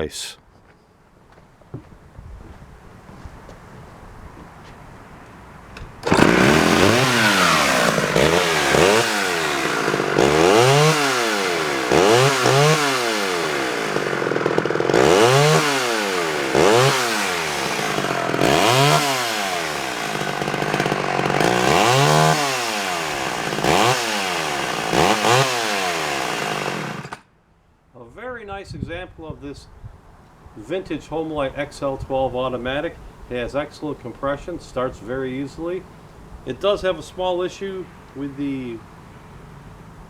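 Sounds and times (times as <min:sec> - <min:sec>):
chainsaw engine revving: 0:06.0 - 0:27.2.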